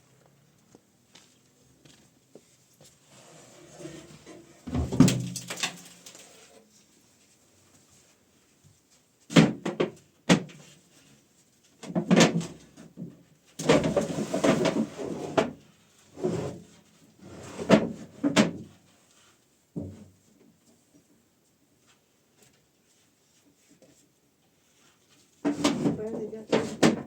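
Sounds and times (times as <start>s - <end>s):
rough wooden scrape: 3.1s - 4.9s.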